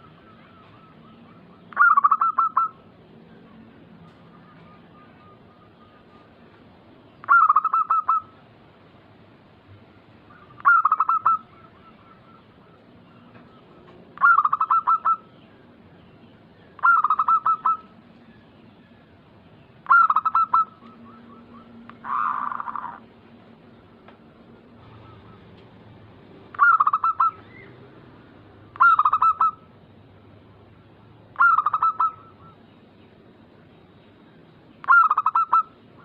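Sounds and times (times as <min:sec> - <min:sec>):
dove cooing: 0:00.0 - 0:02.9, 0:07.2 - 0:08.4, 0:10.3 - 0:15.3, 0:16.8 - 0:18.0, 0:19.8 - 0:23.1, 0:24.7 - 0:27.8, 0:28.6 - 0:29.7, 0:31.4 - 0:32.6, 0:34.8 - 0:36.0.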